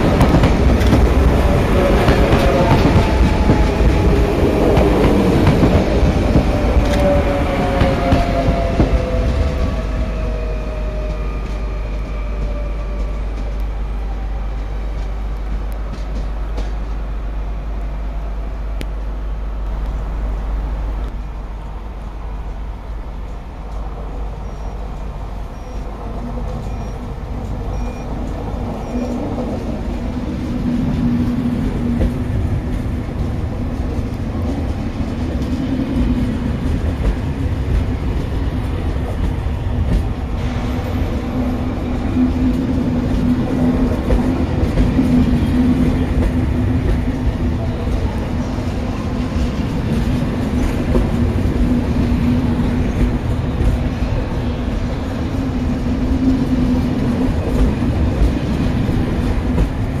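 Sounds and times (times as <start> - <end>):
train wheels rumbling on rail: 0.0 - 60.0.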